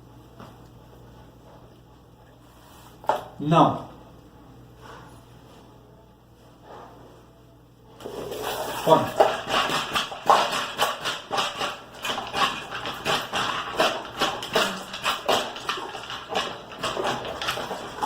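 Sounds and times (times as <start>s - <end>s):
dogs eating from bowls: 8.0s - 18.0s.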